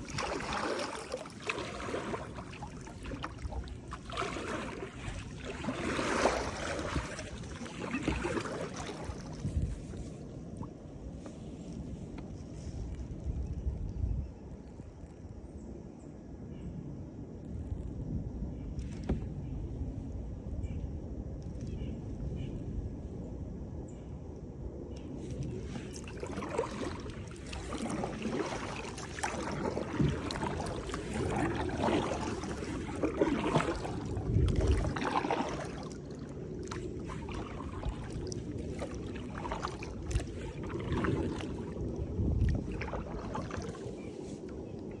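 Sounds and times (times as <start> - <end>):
paddle splashing in water: 0.0 - 12.8, 25.2 - 44.9.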